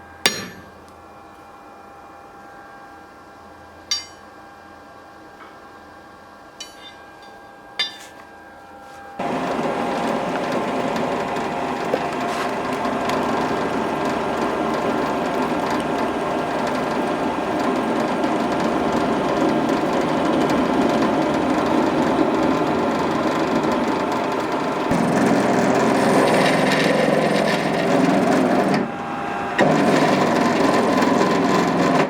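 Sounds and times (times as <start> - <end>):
power tool running under load: 9.2 - 32.0.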